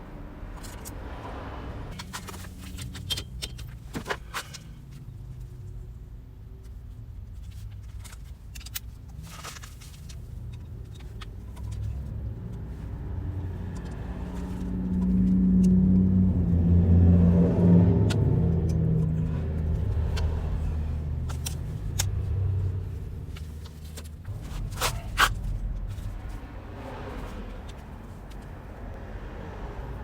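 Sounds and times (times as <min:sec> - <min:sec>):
motorcycle engine rumbling: 0:10.3 - 0:30.0.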